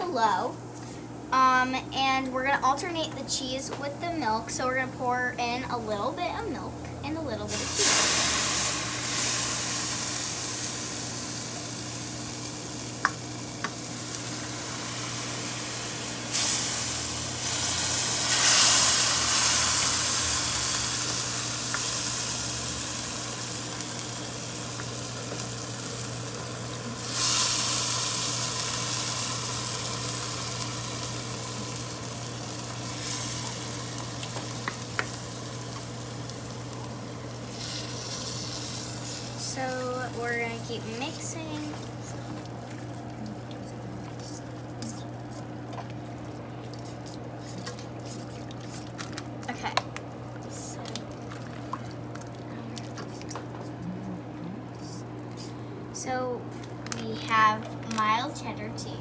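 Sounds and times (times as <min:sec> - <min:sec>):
roux sizzling in a saucepan: 0:07.4 - 0:52.3
stirring in a saucepan: 0:24.0 - 0:53.8.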